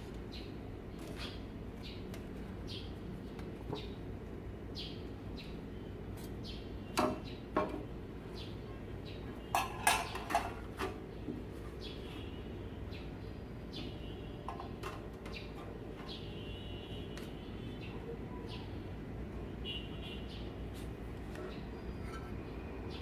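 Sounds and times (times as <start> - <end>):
birds chirping: 0.2 - 10.5, 11.1 - 19.0
metal kitchenware clinking: 9.5 - 11.0.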